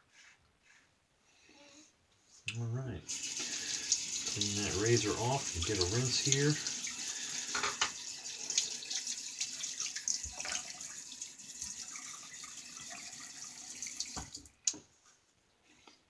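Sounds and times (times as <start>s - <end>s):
tap running into a sink: 3.1s - 14.5s.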